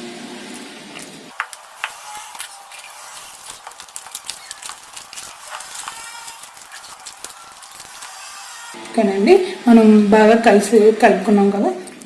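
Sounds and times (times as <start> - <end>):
chicken squishing in marinade: 1.3 - 8.3.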